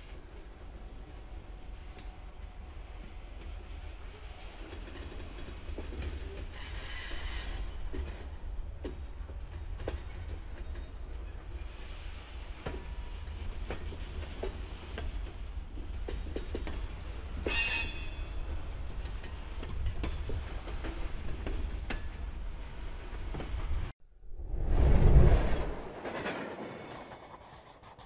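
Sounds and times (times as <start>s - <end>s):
freight train rumbling past: 0.0s - 27.8s
train wheels clicking: 1.8s - 23.8s
high metallic squeal: 26.5s - 28.0s.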